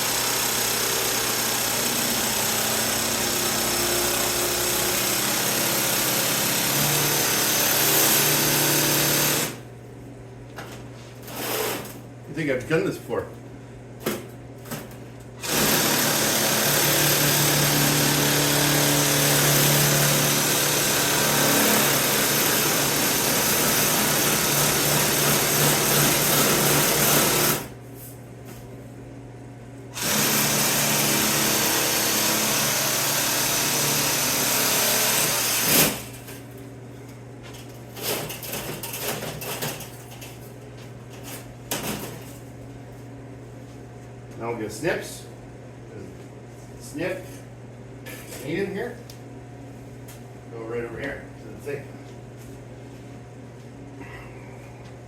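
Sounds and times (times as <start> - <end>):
electric tool cutting sheet steel: 0.0 - 9.6, 15.4 - 27.7, 30.0 - 36.1.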